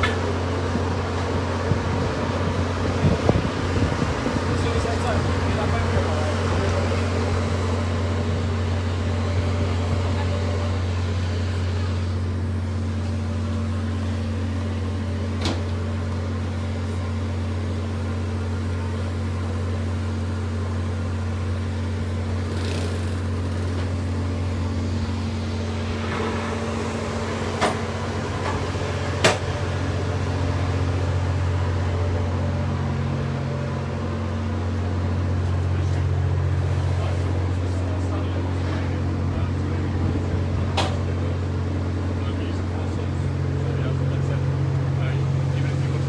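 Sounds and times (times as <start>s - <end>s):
low machinery hum: 0.0s - 46.0s.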